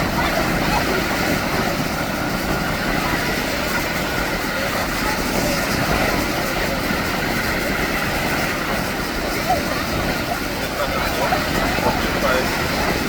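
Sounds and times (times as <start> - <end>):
distant turboprop plane drone: 0.0 - 13.0.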